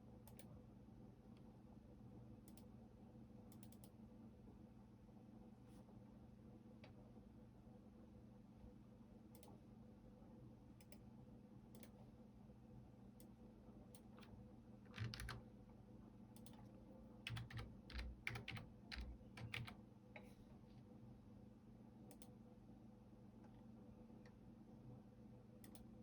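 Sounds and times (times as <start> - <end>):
faint steady hum: 0.0 - 26.0
keyboard typing: 14.2 - 15.4, 16.4 - 19.8.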